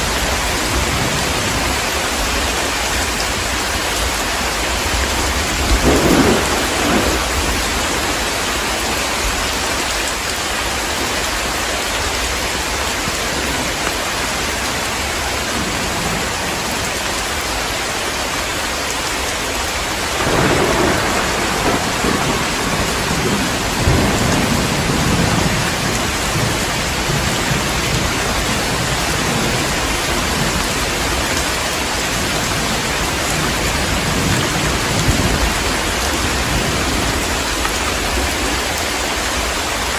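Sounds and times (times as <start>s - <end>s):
heavy rain pouring: 0.0s - 39.9s
rolling thunder: 4.9s - 9.8s, 20.1s - 38.6s.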